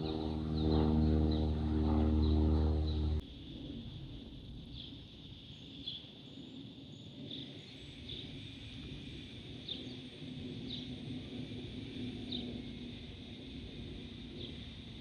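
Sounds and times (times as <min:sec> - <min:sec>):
low rumble: 0:00.0 - 0:04.9
steady high hiss: 0:03.3 - 0:15.0.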